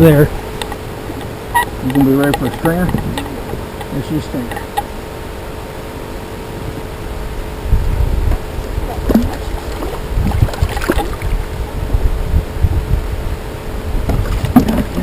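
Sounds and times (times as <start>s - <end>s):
knocks and clicks of gear: 0.0s - 4.9s
wind buffeting microphone: 0.0s - 5.1s, 6.6s - 15.0s
water moving around kayak: 0.0s - 15.0s.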